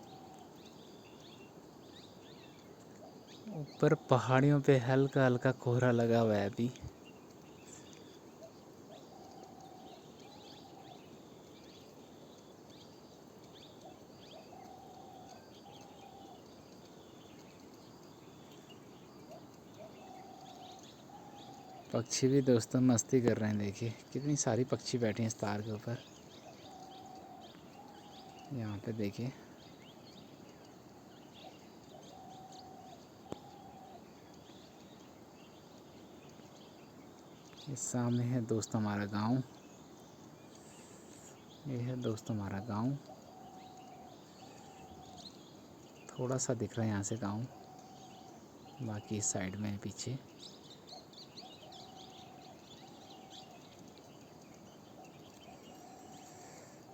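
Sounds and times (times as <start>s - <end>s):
small birds chirping: 0.0s - 56.9s
dove cooing faintly: 7.6s - 11.1s, 13.5s - 17.7s, 30.4s - 34.8s, 46.1s - 50.1s, 51.3s - 56.9s.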